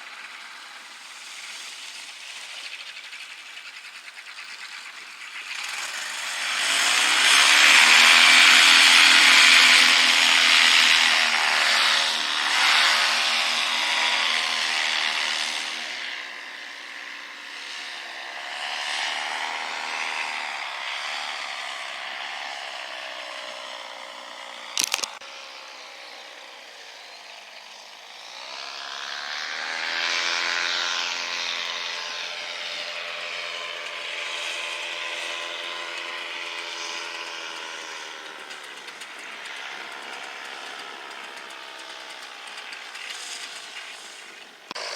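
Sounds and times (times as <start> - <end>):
small engine running: 0.0 - 44.9
sharp click: 24.8 - 25.2.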